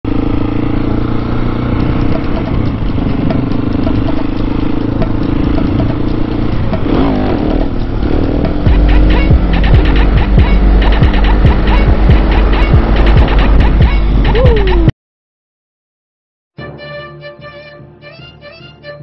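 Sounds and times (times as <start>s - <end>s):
motorcycle engine running: 0.1s - 14.9s.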